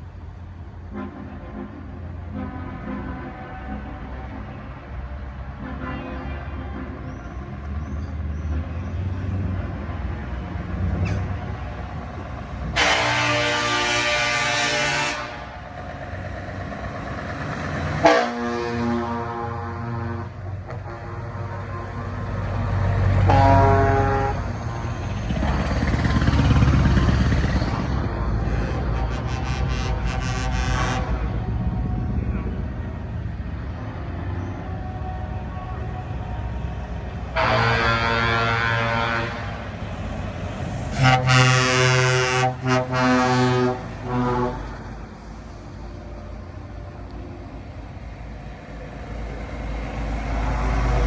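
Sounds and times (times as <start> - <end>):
heavy truck engines running: 0.0 - 51.0
truck air horn blast: 0.9 - 4.7, 5.5 - 7.1, 12.6 - 16.3, 17.8 - 31.5, 37.3 - 39.9, 40.9 - 45.3
truck accelerating past: 6.8 - 51.0.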